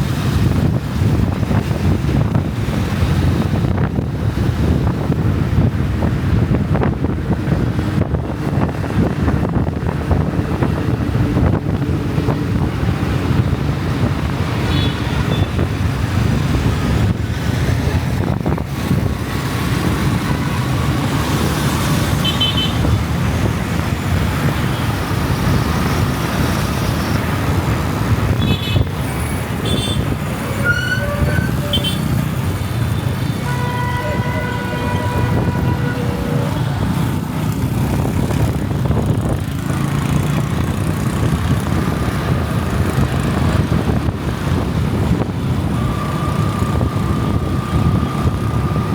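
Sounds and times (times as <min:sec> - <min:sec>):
wind and road noise: 0:00.0 - 0:48.9
vehicle horns tooting: 0:14.6 - 0:15.6, 0:22.2 - 0:23.0, 0:28.3 - 0:29.0, 0:29.6 - 0:32.3, 0:32.9 - 0:36.9.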